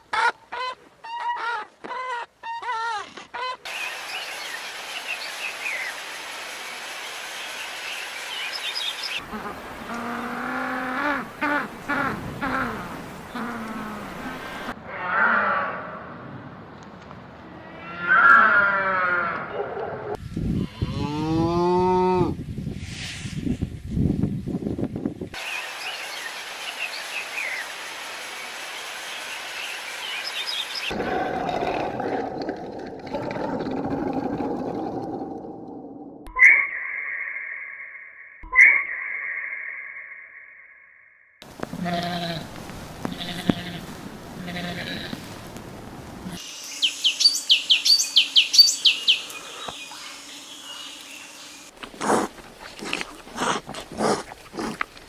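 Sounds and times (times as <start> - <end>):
outdoor hiss: 3.7 - 14.7, 25.3 - 30.9, 41.4 - 53.4
small birds chirping: 7.1 - 9.2, 28.8 - 31.0, 46.4 - 51.7
cow mooing: 17.7 - 19.7, 20.7 - 22.3.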